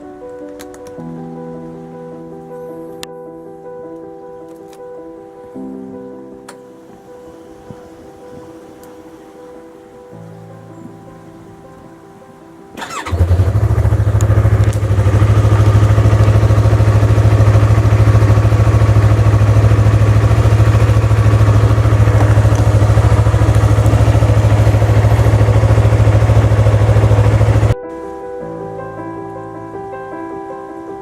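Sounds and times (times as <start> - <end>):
motorcycle engine starting and idling: 12.8 - 27.8.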